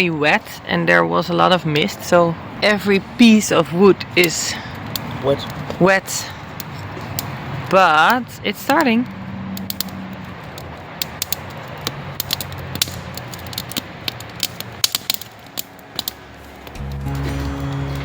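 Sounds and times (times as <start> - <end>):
campfire crackling and popping: 0.0 - 18.0
background music: 16.7 - 18.0.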